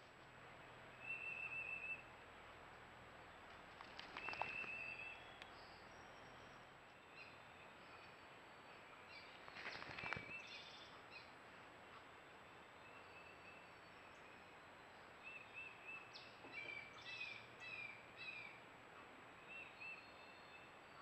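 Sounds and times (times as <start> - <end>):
thin high bird chirps: 3.8 - 8.2, 9.1 - 11.3
bird trilled call: 4.0 - 8.1.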